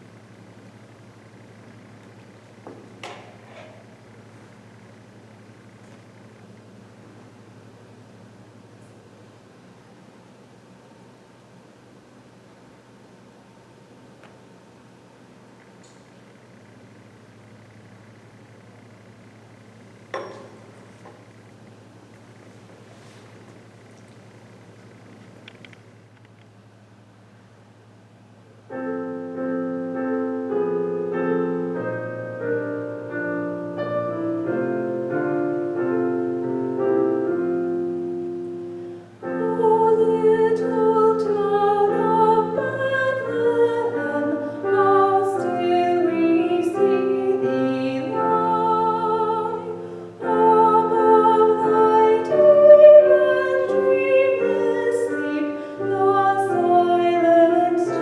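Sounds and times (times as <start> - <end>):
piano playing: 28.7 - 58.0
woman singing with vibrato: 39.2 - 58.0.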